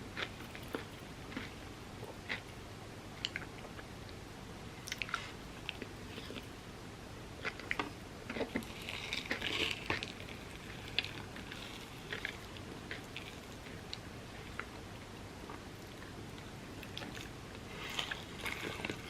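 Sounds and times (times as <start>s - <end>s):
crunching food: 0.1s - 2.6s, 7.4s - 14.8s, 15.4s - 19.0s
wet chewing: 7.4s - 14.7s, 16.8s - 19.0s.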